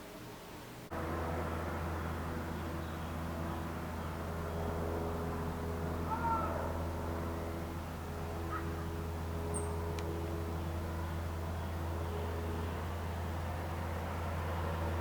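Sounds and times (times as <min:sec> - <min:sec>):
traffic rumble: 0:00.0 - 0:15.0
bird calls: 0:07.4 - 0:09.8.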